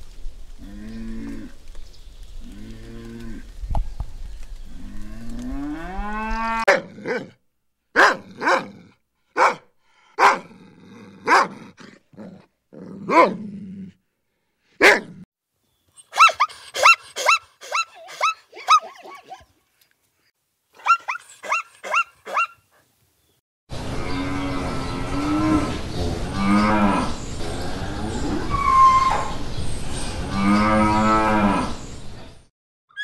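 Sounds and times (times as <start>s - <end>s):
puppy barking and yelping: 9.4s - 9.6s, 16.0s - 19.5s, 20.8s - 22.6s.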